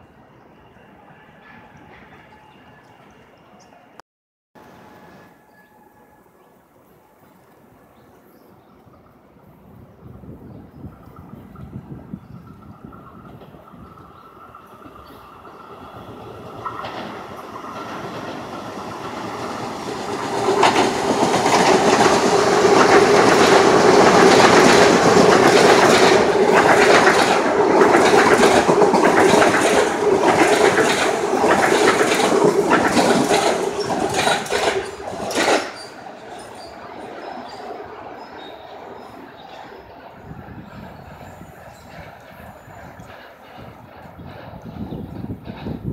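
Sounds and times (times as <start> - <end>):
train passing: 0.0 - 4.0, 4.6 - 45.9
wheels clattering over rail joints: 11.2 - 39.8.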